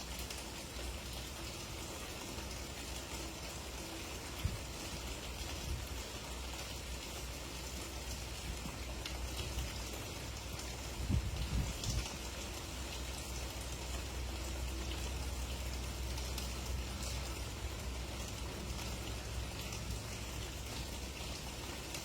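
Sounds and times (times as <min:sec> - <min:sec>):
steady rain: 0:00.0 - 0:22.0.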